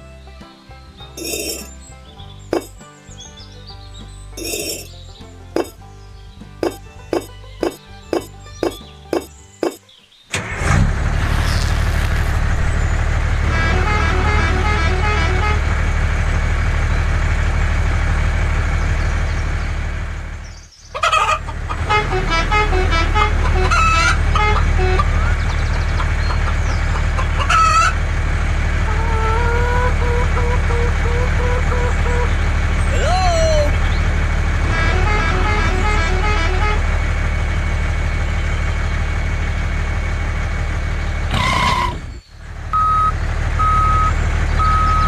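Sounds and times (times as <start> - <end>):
hens clucking: 1.2 - 2.8, 4.4 - 10.0, 20.9 - 34.0
vehicle engine running: 2.4 - 2.8, 4.4 - 5.8, 6.4 - 9.8, 10.4 - 45.0.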